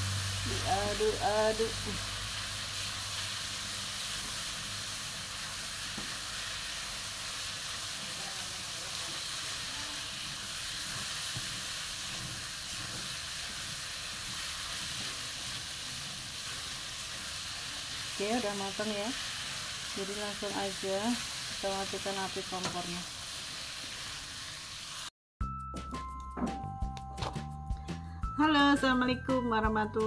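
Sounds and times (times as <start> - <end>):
vegetables sizzling in hot oil: 0.0 - 25.1
spatula stirring in wok: 2.0 - 25.0.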